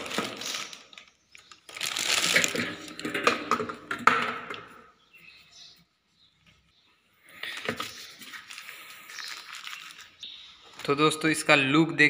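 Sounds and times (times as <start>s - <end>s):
plastic bag crinkling: 0.0s - 3.4s, 7.4s - 11.0s.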